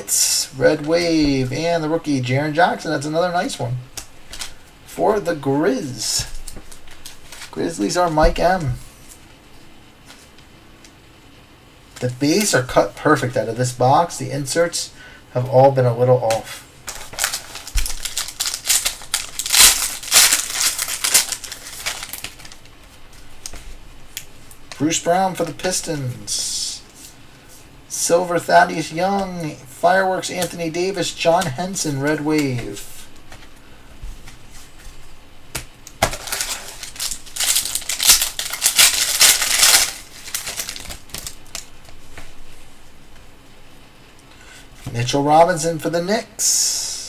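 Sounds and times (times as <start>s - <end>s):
trading cards crinkling and rustling: 0.2s - 10.5s, 11.9s - 13.8s, 16.2s - 26.2s, 30.2s - 42.8s
wrapper torn and crinkled: 16.9s - 22.7s, 36.0s - 41.7s.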